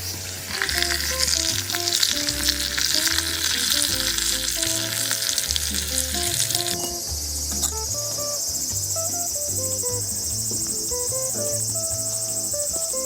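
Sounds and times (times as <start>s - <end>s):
background music with bass: 0.0s - 13.0s
crickets chirping: 0.0s - 13.0s
meat sizzling on a grill: 0.0s - 13.0s
fat spitting: 0.5s - 8.0s.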